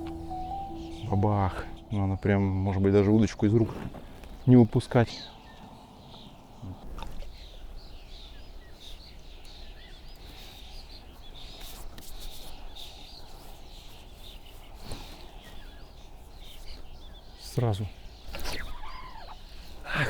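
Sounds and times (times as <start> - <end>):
songbirds chirping: 0.0 - 3.5, 15.4 - 19.8.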